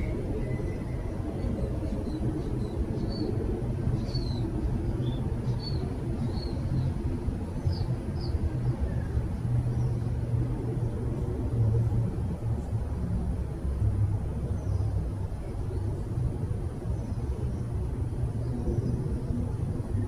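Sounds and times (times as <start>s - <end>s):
small birds chirping: 0.0s - 7.0s, 7.6s - 10.2s
steady low rumble: 0.0s - 20.0s.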